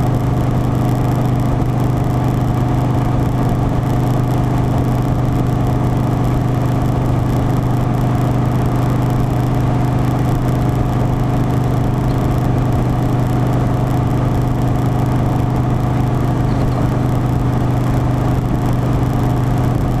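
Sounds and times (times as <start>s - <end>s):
motorcycle engine cruising: 0.0s - 20.0s
road and wind noise: 0.0s - 20.0s.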